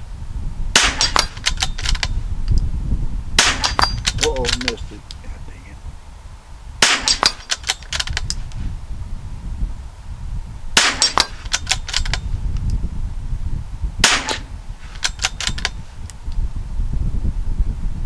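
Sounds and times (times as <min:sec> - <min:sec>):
steady low rumble: 0:00.0 - 0:18.0
rifle shots: 0:00.7 - 0:02.1, 0:03.4 - 0:04.8, 0:06.8 - 0:08.1, 0:10.8 - 0:12.2, 0:14.0 - 0:15.7.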